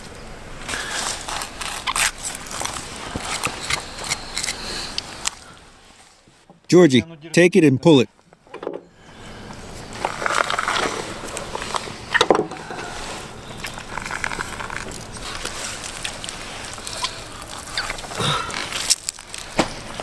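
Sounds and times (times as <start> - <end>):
skin peeling wet rustling: 0.6 - 5.5, 9.8 - 20.0.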